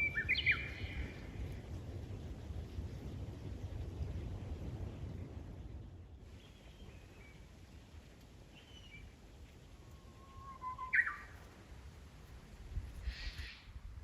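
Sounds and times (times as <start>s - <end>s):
bird whistling song: 0.0s - 1.1s, 8.6s - 9.1s, 10.0s - 11.5s
faint bird chirps: 9.9s - 11.5s.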